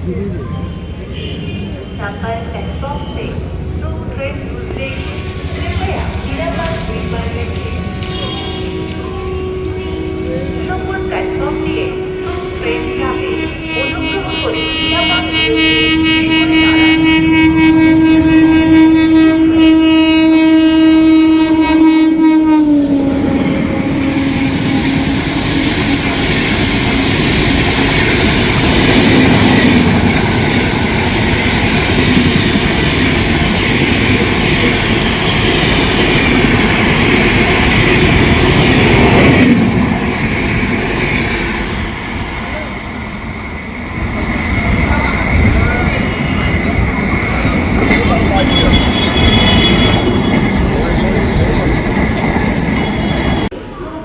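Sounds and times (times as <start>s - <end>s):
train coaches rattling past: 0.0s - 54.0s
locomotive horn blast: 5.0s - 40.3s, 45.3s - 53.5s.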